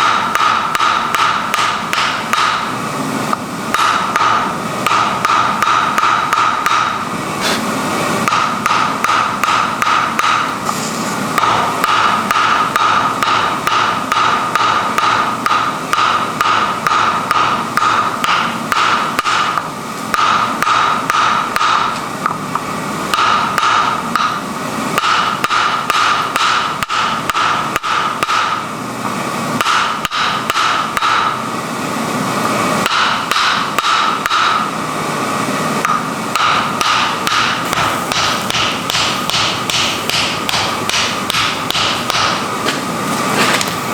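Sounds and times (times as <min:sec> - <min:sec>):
hammer blows on iron: 0:35.8 - 0:42.8.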